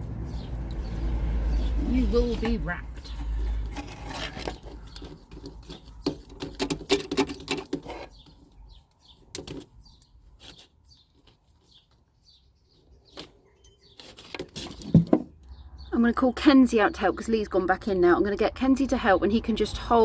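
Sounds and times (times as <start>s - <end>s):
rustles and clicks: 2.0s - 12.1s, 13.0s - 15.4s.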